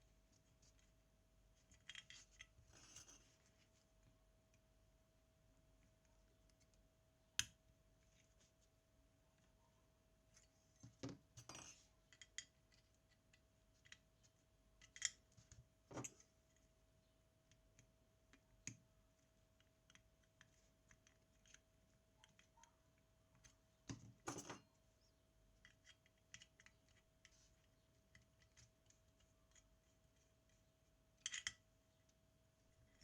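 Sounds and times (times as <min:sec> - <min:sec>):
faint steady hum: 0:00.0 - 0:33.0
small tools clicking and tapping: 0:10.8 - 0:14.1, 0:25.6 - 0:29.8, 0:31.2 - 0:31.6.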